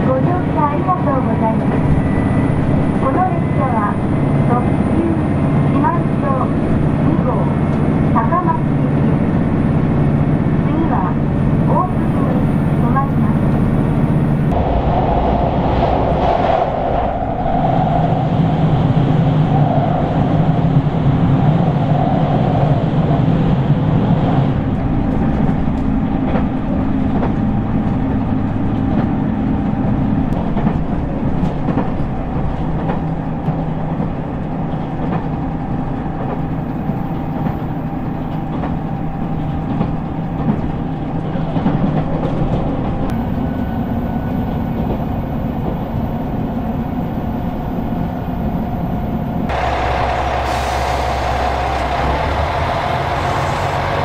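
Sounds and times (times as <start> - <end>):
low diesel engine drone: 0.0 - 14.7, 43.0 - 54.0
wheels clattering on rails: 24.6 - 43.2.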